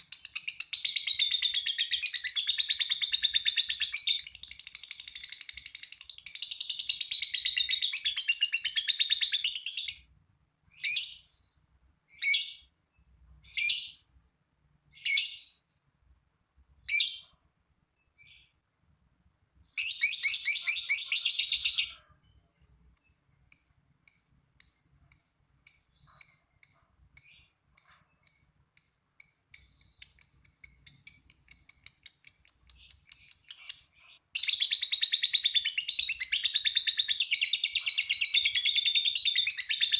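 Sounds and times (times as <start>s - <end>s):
lovebird chattering and chirping: 0.0s - 10.1s, 13.4s - 14.1s, 19.6s - 22.0s, 22.9s - 39.9s.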